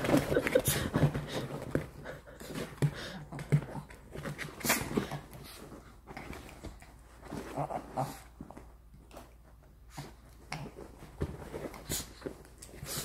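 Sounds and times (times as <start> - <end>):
dogs panting: 0.4 - 3.9.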